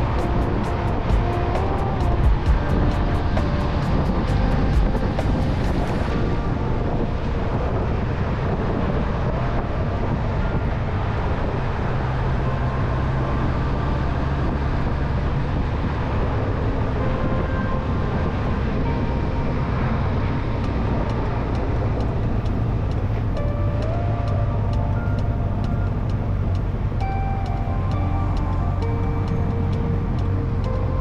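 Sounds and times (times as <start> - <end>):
motorcycle engine rumble: 0.0 - 31.0
wind and road noise: 0.0 - 31.0.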